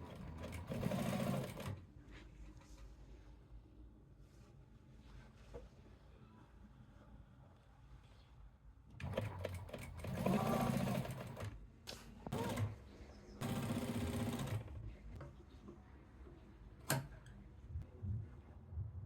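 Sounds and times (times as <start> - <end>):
sewing machine stitching: 0.0 - 1.8, 9.0 - 11.5, 12.3 - 12.8.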